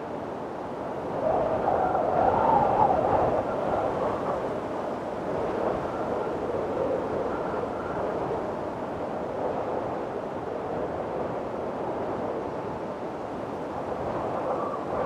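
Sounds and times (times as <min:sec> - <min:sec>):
strong wind blowing: 0:00.0 - 0:15.0
faint whistling howl: 0:01.1 - 0:04.4, 0:05.6 - 0:08.4, 0:14.0 - 0:15.0.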